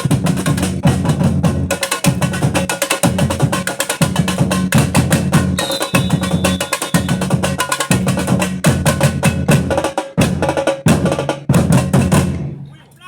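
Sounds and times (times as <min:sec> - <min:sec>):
deep bass drum beats: 0:00.0 - 0:12.6
samba percussion ensemble: 0:00.0 - 0:12.6.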